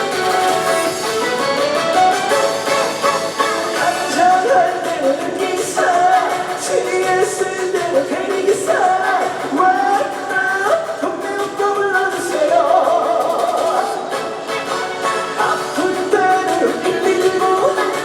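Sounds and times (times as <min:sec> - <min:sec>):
instrumental accompaniment: 0:00.0 - 0:07.1, 0:14.1 - 0:18.0
man singing: 0:03.4 - 0:14.3, 0:15.1 - 0:18.0.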